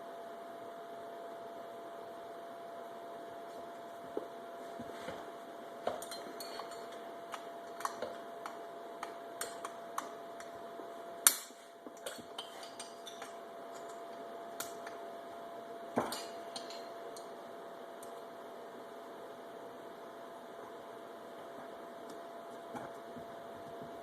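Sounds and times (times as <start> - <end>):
metal tools clicking and clinking: 5.9 - 8.6.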